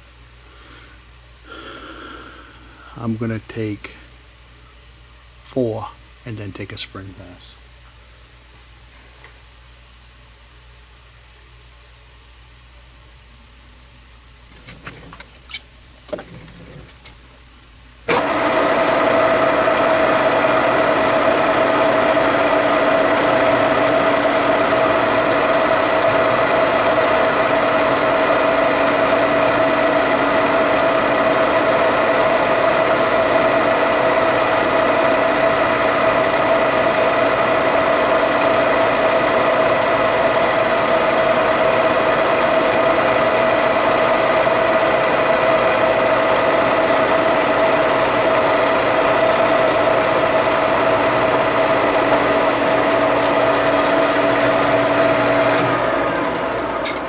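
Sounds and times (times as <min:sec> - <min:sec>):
metal lathe running with whine: 0:18.1 - 0:57.0.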